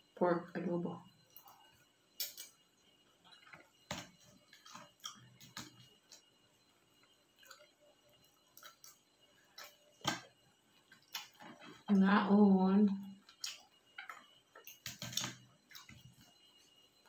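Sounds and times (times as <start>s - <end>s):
person chewing: 4.5s - 6.2s, 7.4s - 7.7s, 8.5s - 9.8s, 10.9s - 11.8s, 13.2s - 16.1s.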